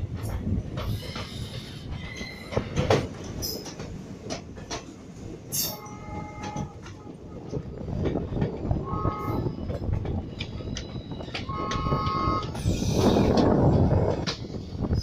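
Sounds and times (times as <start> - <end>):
train coaches rumbling: 0.0 - 15.0
wheels clicking over rail joints: 0.0 - 15.0.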